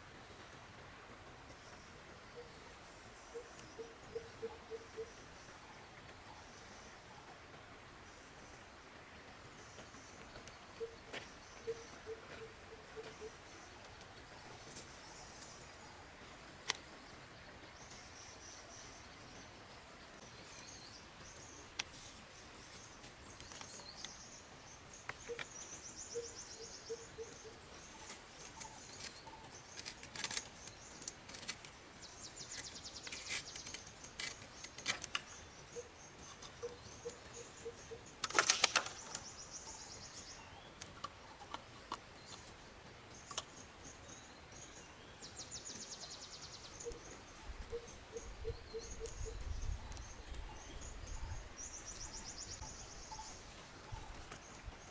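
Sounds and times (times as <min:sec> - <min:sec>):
low evenly spaced calls: 0:02.0 - 0:07.4, 0:10.1 - 0:15.4, 0:35.4 - 0:41.6
birds chirping trills: 0:09.6 - 0:54.9
rustling clatter: 0:38.2 - 0:39.3.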